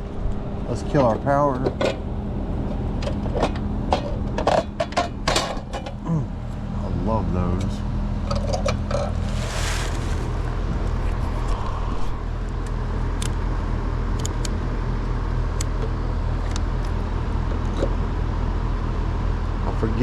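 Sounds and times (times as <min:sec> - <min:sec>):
steady low rumble: 0:09.0 - 0:13.6.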